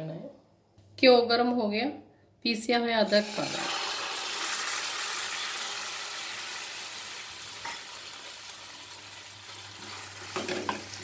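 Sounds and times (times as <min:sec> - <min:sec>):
paste sizzling in hot oil: 0:03.0 - 0:11.0.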